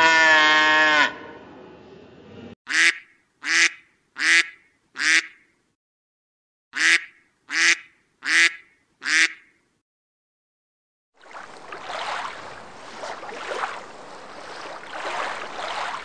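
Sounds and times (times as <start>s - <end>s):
duck quacking: 2.7s - 5.4s, 6.8s - 9.5s.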